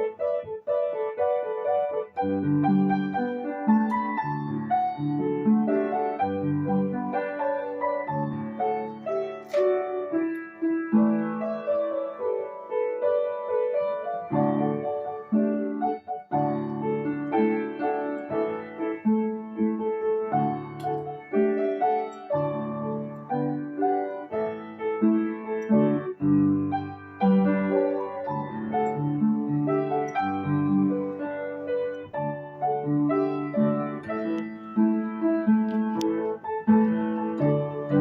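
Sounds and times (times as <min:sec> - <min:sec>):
piano chords: 0:00.0 - 0:38.0.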